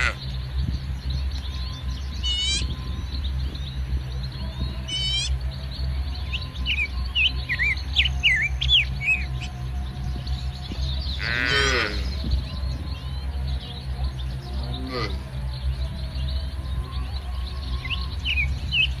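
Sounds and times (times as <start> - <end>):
cattle calling: 0.0 - 0.3, 10.5 - 12.5, 13.6 - 15.6
small birds chirping: 0.0 - 19.0
steady low rumble: 0.0 - 19.0.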